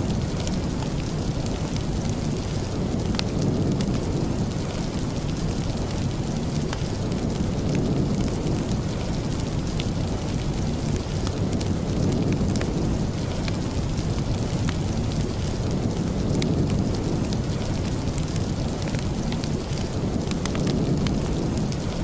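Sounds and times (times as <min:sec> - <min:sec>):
steady rain: 0:00.0 - 0:22.0
wood fire crackling: 0:00.0 - 0:22.0.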